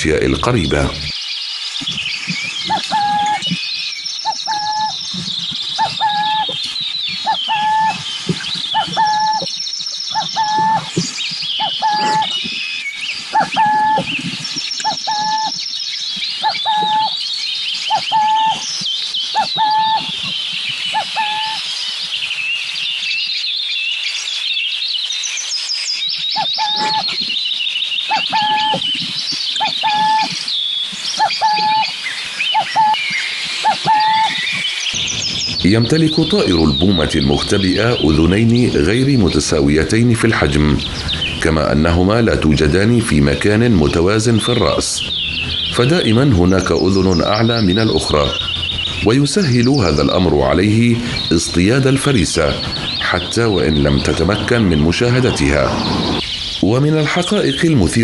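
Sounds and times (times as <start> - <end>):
wild birds chirping and singing: 0.0 - 58.0.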